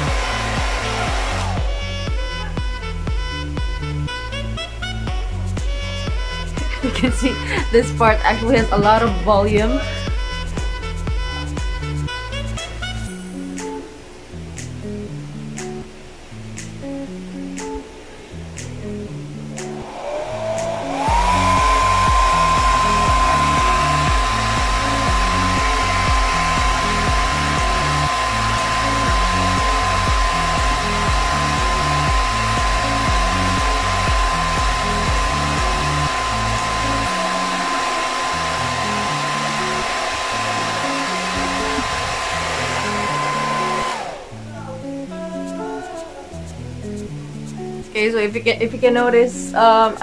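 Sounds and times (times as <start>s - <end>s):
rush of air: 0.0s - 1.9s, 19.6s - 44.4s
hair dryer motor whine: 0.0s - 2.2s, 6.3s - 10.9s, 19.8s - 44.4s.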